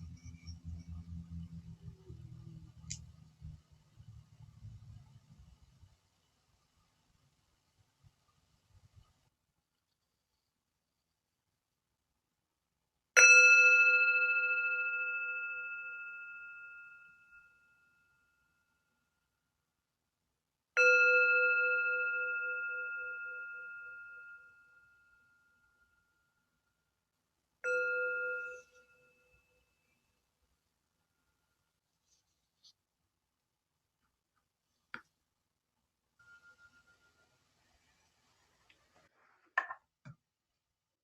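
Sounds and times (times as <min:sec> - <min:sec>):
low wavering hum: 0:00.0 - 0:05.1
singing bowl ringing: 0:13.2 - 0:18.4, 0:20.8 - 0:26.4, 0:27.6 - 0:29.9, 0:36.2 - 0:37.4.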